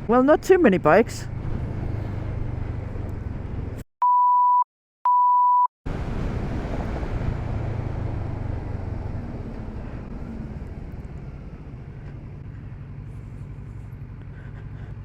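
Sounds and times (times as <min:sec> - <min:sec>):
motorcycle engine rumble: 0:00.0 - 0:03.8, 0:05.9 - 0:15.0
steady electronic beeps: 0:04.0 - 0:05.7.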